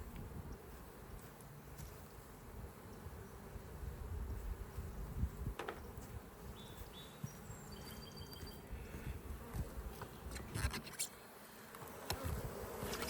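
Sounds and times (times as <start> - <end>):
honeybees buzzing: 0.0 - 13.0
rustles: 4.0 - 13.0.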